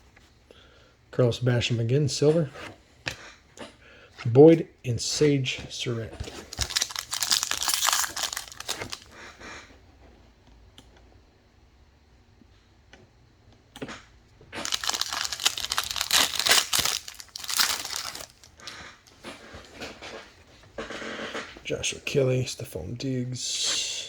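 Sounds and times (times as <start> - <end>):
card pack wrappers crinkling: 6.2 - 9.1, 14.6 - 18.8.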